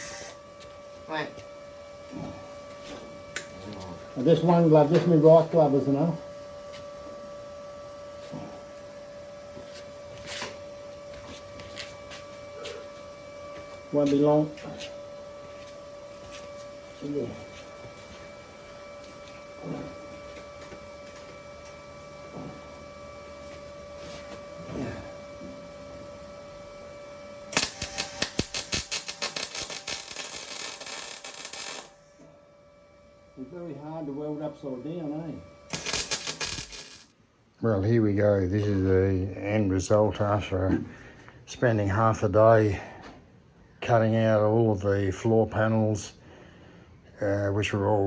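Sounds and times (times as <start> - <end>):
welder arc crackling: 0.0 - 0.4, 27.5 - 32.2, 35.7 - 37.1
welder electrical hum: 0.0 - 48.0.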